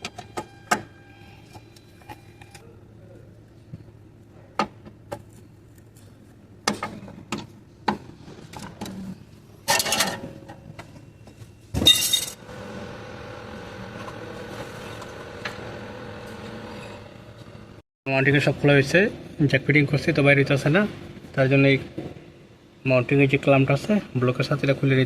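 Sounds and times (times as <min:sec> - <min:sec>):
steady hum with held tones: 0:08.8 - 0:25.0.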